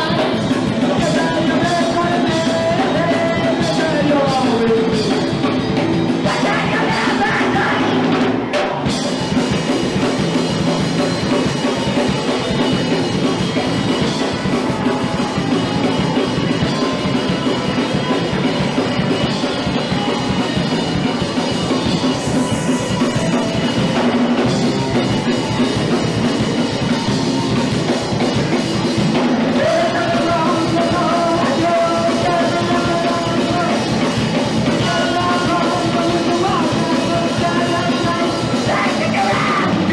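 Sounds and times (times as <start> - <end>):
person singing: 0.0 - 9.5, 28.9 - 39.9
punk rock band playing live: 0.0 - 39.9.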